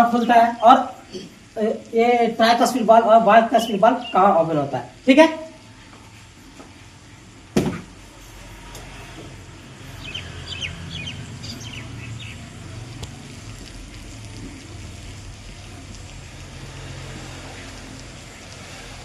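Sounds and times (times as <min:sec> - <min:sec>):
birds chirping: 0:00.0 - 0:04.8, 0:09.8 - 0:13.1.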